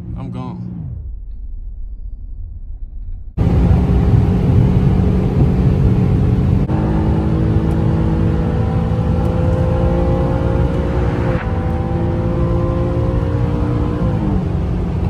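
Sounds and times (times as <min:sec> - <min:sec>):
car engine accelerating hard: 0:03.4 - 0:15.0.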